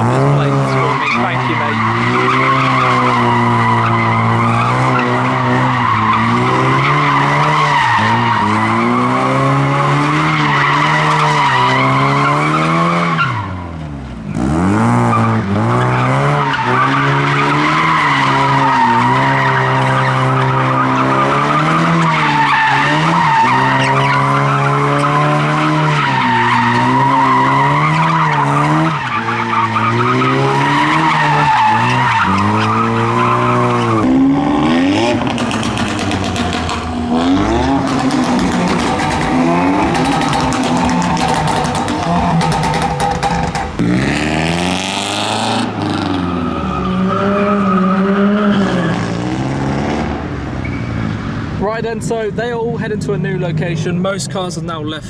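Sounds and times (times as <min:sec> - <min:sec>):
tyres screeching: 0:00.0 - 0:13.5, 0:15.1 - 0:49.1
car engine at high revs: 0:00.0 - 0:51.6.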